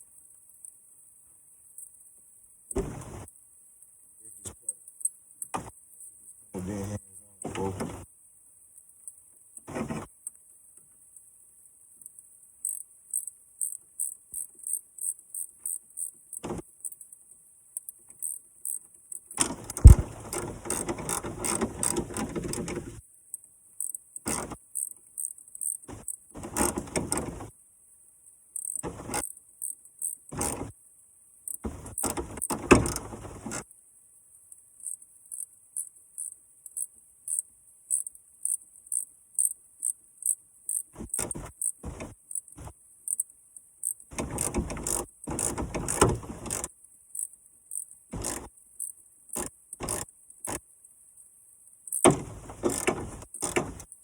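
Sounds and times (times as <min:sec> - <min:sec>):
sharp knock: 0:19.8 - 0:20.1.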